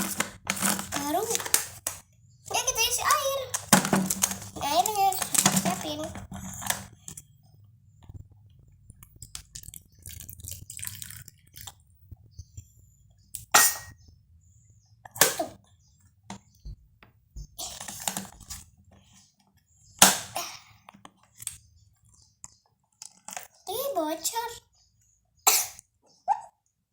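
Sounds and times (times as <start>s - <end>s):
plastic toy clicks and knocks: 0.0s - 2.0s, 2.8s - 7.2s.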